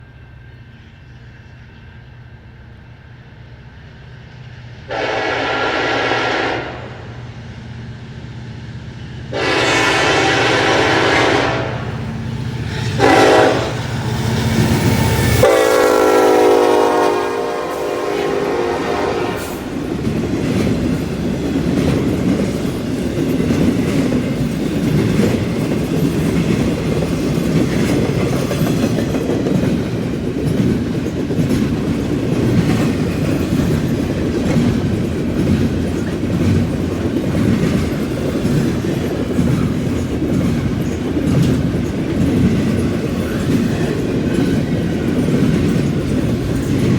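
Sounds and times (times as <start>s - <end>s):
train rumbling by: 0.0s - 46.9s
diesel locomotive horn: 4.9s - 7.3s, 9.3s - 12.1s, 12.8s - 14.0s, 15.3s - 19.8s
wheels clacking over rail joints: 9.3s - 46.9s.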